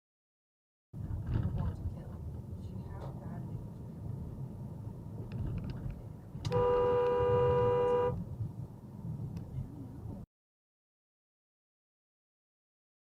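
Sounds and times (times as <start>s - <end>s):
car driving rumble: 1.0s - 10.3s
car horn honk: 6.5s - 8.2s.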